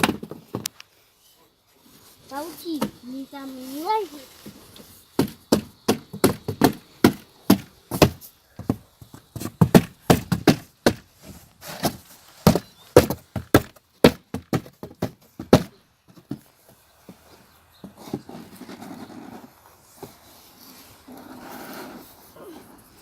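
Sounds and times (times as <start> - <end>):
hammer thudding on cardboard box: 5.2 - 8.8, 9.4 - 11.1, 11.8 - 15.8.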